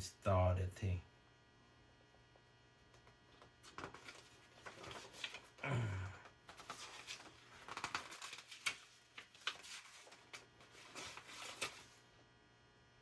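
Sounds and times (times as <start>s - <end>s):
small clicks and rustles handling: 2.9s - 5.6s, 6.5s - 12.0s.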